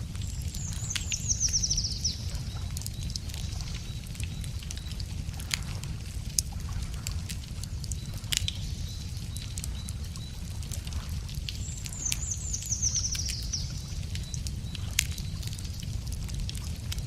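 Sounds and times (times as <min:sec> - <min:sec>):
campfire crackling and popping: 0:00.0 - 0:17.0
low rumble of fire: 0:00.0 - 0:17.0.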